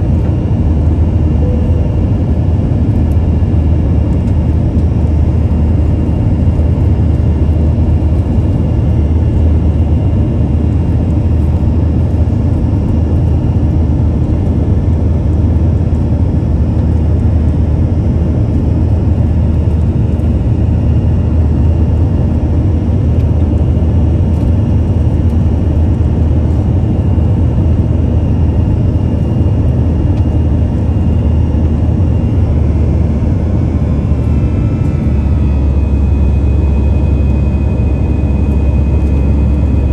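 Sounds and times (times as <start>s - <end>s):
jet engine roar in cabin: 0.0s - 39.9s
faint high whine: 1.2s - 4.1s, 30.2s - 39.9s.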